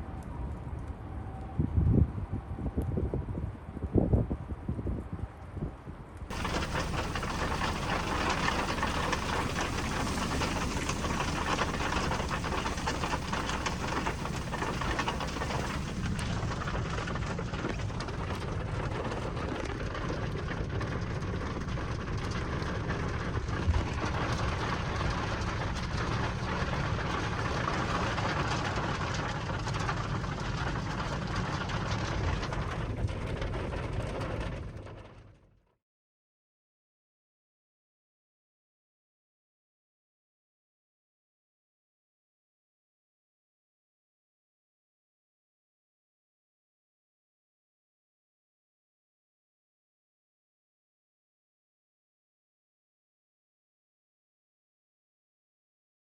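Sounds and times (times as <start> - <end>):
hail pelting a car: 6.3 - 34.6.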